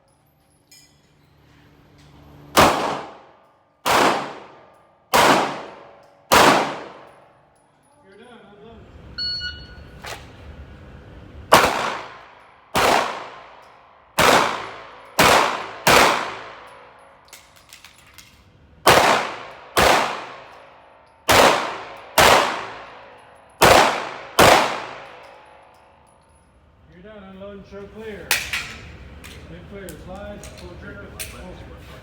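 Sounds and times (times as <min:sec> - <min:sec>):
pistol shots echoing: 0:02.6 - 0:07.3, 0:11.5 - 0:13.6, 0:14.2 - 0:17.0, 0:18.9 - 0:25.6.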